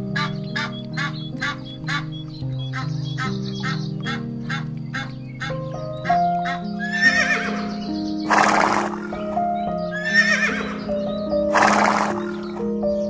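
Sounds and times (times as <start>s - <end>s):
music with sustained notes: 0.0s - 13.0s.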